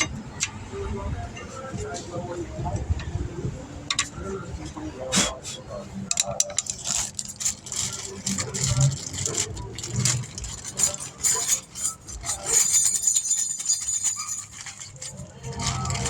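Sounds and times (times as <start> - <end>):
metal tools clinking and rattling: 6.1 - 16.0.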